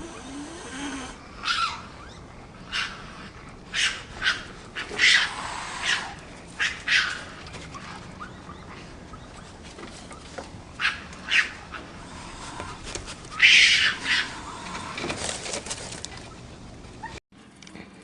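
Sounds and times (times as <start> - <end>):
dog barking: 2.7 - 3.1, 3.7 - 7.2, 10.8 - 11.7.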